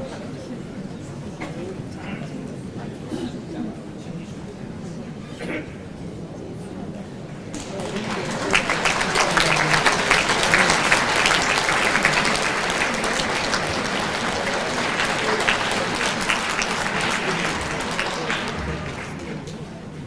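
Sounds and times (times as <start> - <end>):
audience applauding: 7.5 - 19.9.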